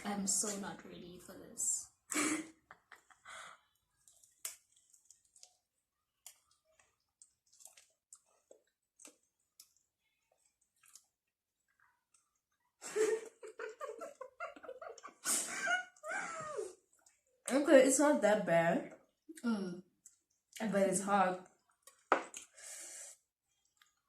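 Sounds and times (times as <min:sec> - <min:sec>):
chewing and mouth clicks: 0:03.8 - 0:12.7, 0:16.9 - 0:17.5, 0:18.9 - 0:20.6, 0:21.4 - 0:22.6, 0:23.5 - 0:24.0.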